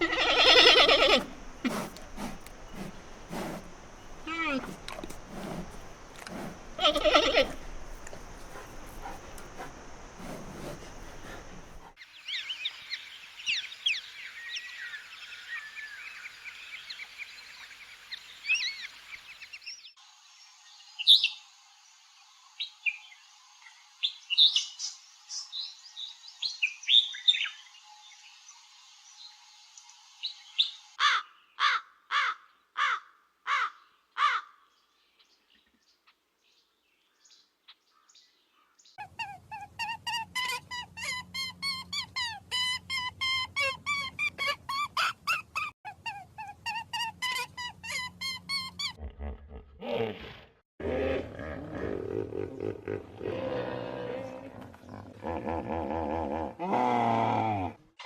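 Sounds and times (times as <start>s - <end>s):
loud bird calls: 0.0s - 12.0s
birds chirping: 0.0s - 14.1s.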